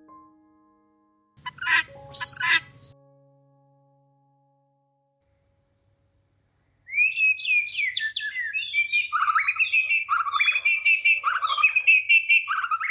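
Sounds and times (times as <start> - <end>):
songbird singing: 1.4 - 2.9, 6.6 - 12.9.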